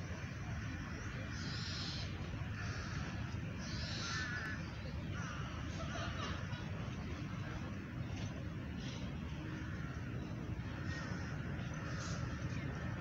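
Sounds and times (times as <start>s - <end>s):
city traffic hum: 0.0s - 13.0s
birds calling harshly: 1.3s - 6.2s.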